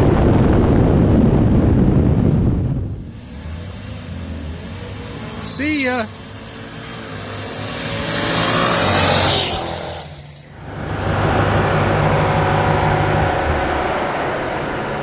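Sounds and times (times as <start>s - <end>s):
road noise: 10.4s - 15.0s
car engines revving: 10.5s - 15.0s.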